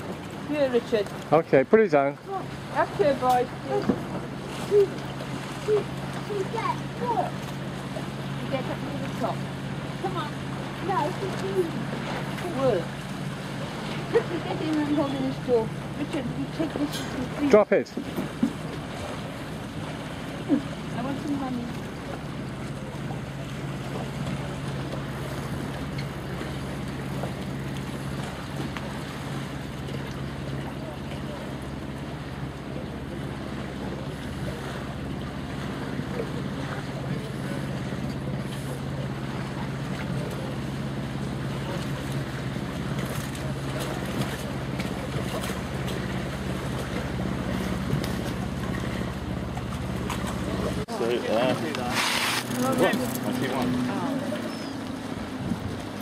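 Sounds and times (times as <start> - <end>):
constant low hum: 0.0 - 56.0
wind blowing over microphone: 55.2 - 56.0.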